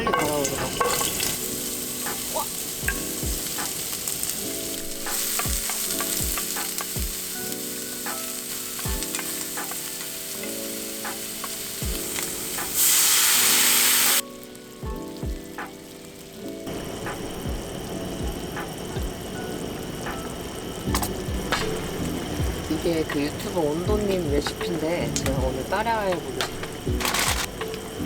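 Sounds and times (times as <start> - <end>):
food sizzling in oil: 0.0 - 28.0
oil pops and clicks: 20.1 - 23.3.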